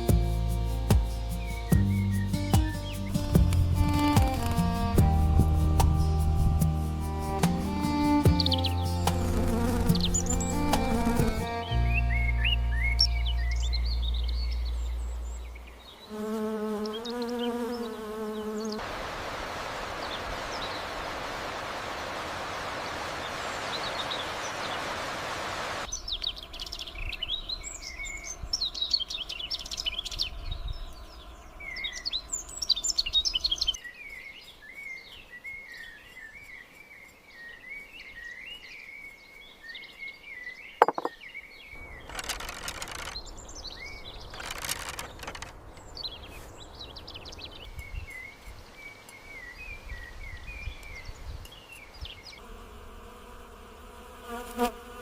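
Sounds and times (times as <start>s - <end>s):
small birds chirping: 0.0s - 18.8s, 25.9s - 55.0s.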